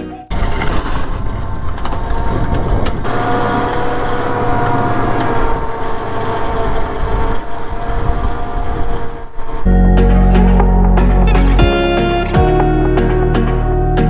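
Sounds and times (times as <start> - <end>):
engine rumbling: 0.0 - 14.0
whining tones: 1.8 - 11.6.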